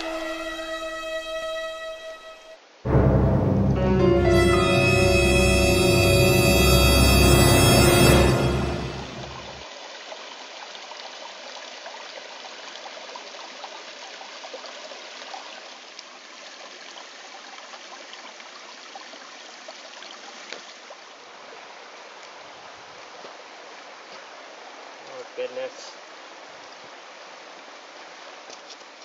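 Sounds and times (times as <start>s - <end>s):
creek water trickling over stones: 9.6s - 29.0s.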